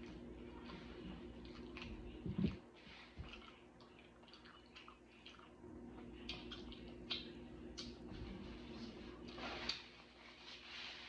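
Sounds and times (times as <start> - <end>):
chewing mouth clicks: 1.4 - 2.6, 3.2 - 5.6, 6.2 - 8.0.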